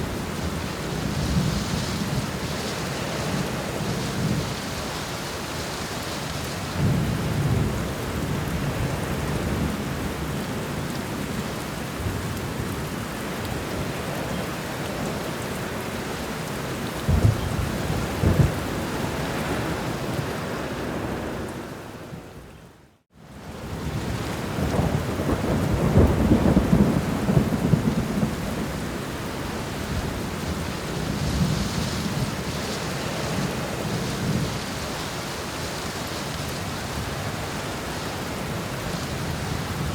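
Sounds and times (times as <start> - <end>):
heavy rain: 0.0 - 39.9
thunder rumbling: 16.9 - 21.4, 23.8 - 35.0.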